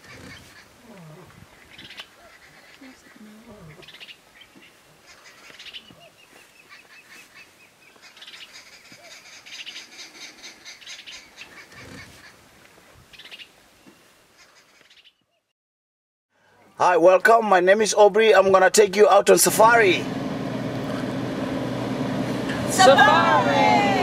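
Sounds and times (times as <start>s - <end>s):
wild birds chirping: 0.0s - 15.5s.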